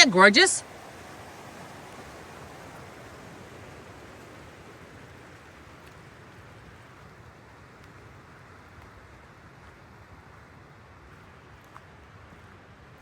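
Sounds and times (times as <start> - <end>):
creek flowing: 0.0 - 13.0
rain falling in forest: 0.0 - 13.0
faint drip ticks: 5.7 - 12.6.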